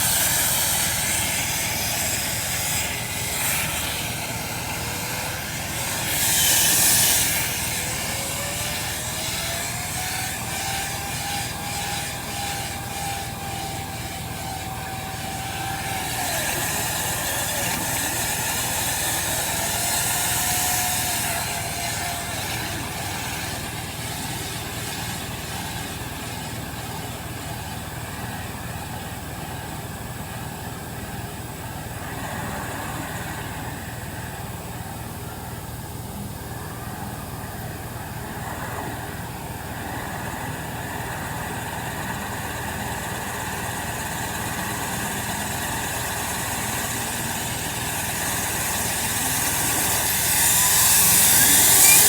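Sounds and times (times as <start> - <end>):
vent cleaning machine running: 0.0 - 52.0
rushes of hiss: 38.4 - 52.0
faint sliding whistle: 45.4 - 52.0.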